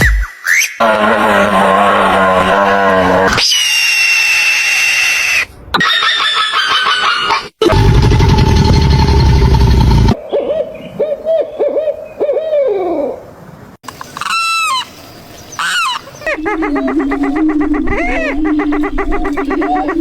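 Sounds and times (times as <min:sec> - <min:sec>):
high animal cries: 0:13.9 - 0:20.0
hoot-like calls sliding down: 0:13.9 - 0:20.0
loud harsh animal call: 0:13.9 - 0:20.0.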